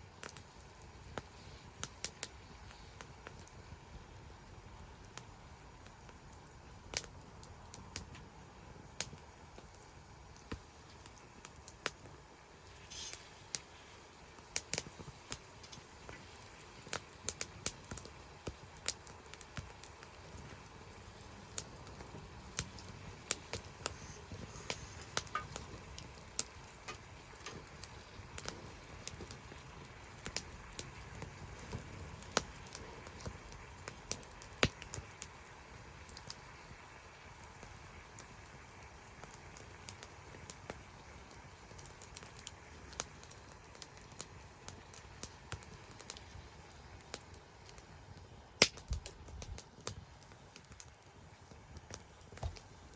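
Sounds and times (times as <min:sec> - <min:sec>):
soft low hiss: 0:00.0 - 0:52.9
wood fire crackling and popping: 0:00.0 - 0:52.9.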